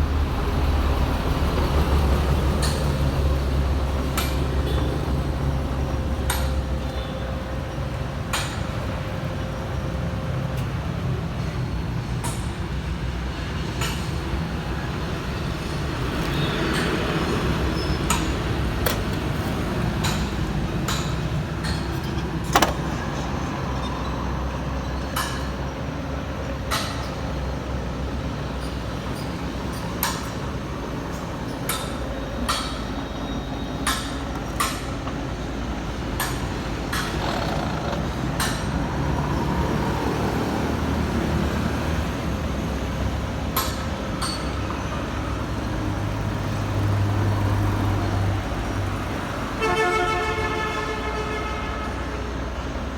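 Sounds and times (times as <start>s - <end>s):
sharp clicks and knocks: 16.2s - 23.1s.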